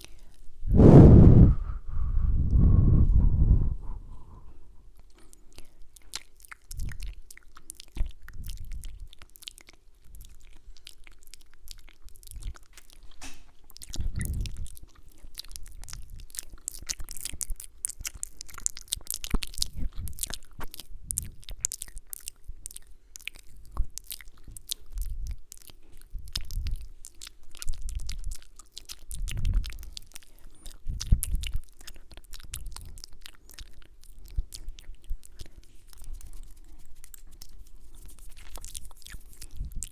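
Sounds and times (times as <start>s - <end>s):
soft low thumps: 0.7s - 4.6s
wet mouth clicks and lip smacks: 5.0s - 39.9s.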